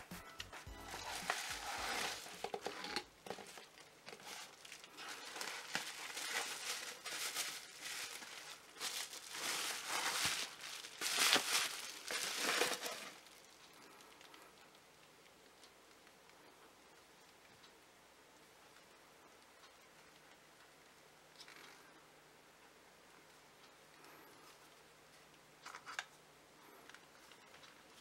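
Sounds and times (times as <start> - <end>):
bubble wrap crinkling: 0.0 - 14.8.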